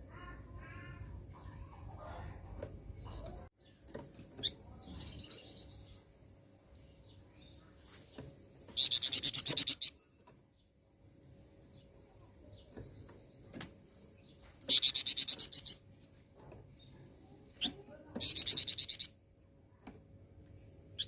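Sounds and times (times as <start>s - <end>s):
songbird trilling: 8.7s - 10.0s, 14.7s - 15.8s, 17.6s - 19.2s.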